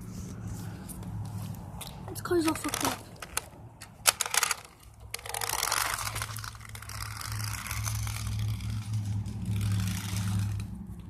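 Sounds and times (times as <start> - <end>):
toy car scraping through grass: 2.4 - 3.4, 4.1 - 10.8
low hum: 3.6 - 11.0.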